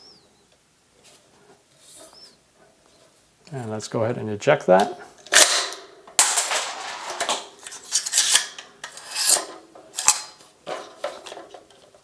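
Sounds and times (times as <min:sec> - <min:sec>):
metal sliding against metal: 0:06.5 - 0:11.3
sharp metal click: 0:07.6 - 0:10.4.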